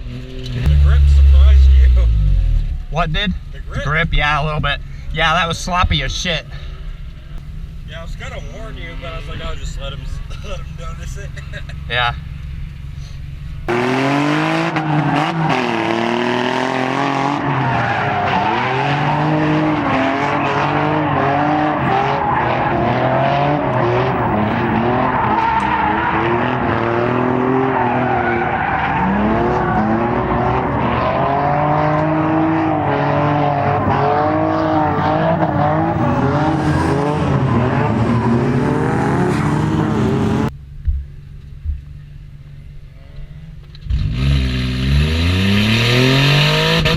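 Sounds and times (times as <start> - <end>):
car engine revving hard: 13.7 - 40.5, 43.9 - 46.9
tire squeal: 14.4 - 40.5.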